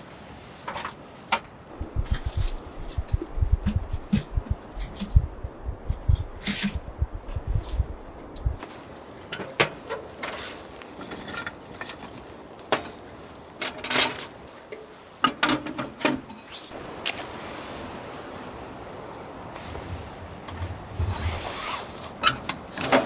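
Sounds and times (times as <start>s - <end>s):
rustling swish: 1.8s - 8.6s.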